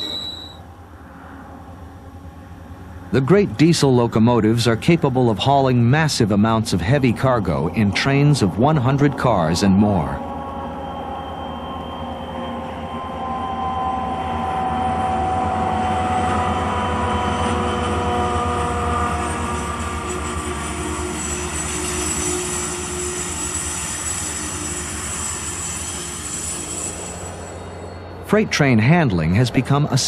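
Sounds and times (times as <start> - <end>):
faint high squeal: 0.0 - 1.5, 10.2 - 28.3
diesel locomotive engines rumbling: 0.0 - 30.0
train cars rolling past: 0.0 - 30.0.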